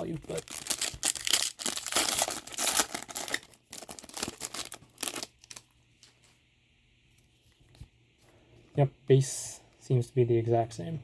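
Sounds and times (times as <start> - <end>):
wrapper tearing and crinkling: 0.0 - 5.7.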